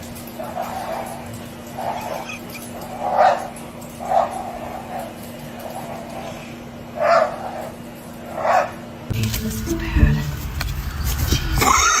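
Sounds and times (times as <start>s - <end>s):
dog barking: 3.0s - 5.1s, 7.0s - 7.6s, 8.4s - 8.8s.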